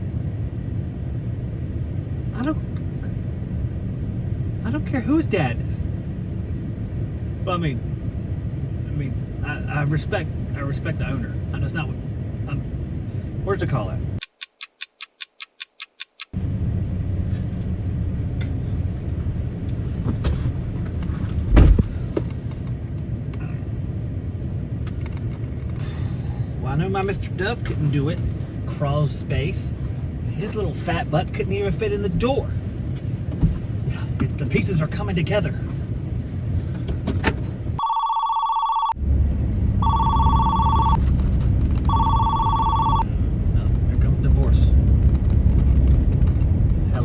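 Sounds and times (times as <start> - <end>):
vehicle rumbling on road: 0.0 - 14.2, 15.8 - 38.0, 38.8 - 47.0
low thump: 21.4 - 22.3
telephone bell ringing: 37.8 - 39.0, 39.8 - 41.0, 41.9 - 43.0.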